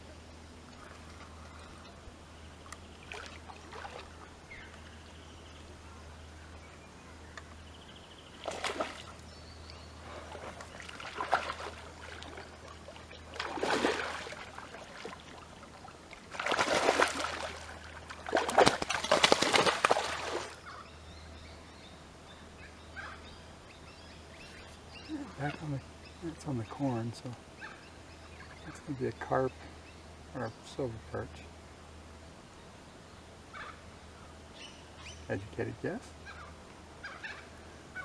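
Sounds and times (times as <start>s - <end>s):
water splashing and sloshing: 0.0s - 4.9s, 8.3s - 9.3s, 10.0s - 20.6s.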